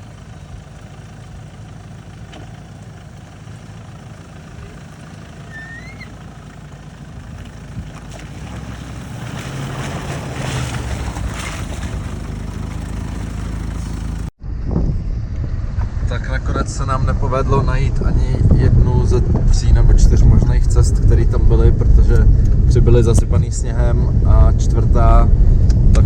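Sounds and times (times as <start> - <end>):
suv engine rumble: 0.0 - 26.0
tyre and wind noise: 0.0 - 26.0
high chirp: 5.4 - 6.2.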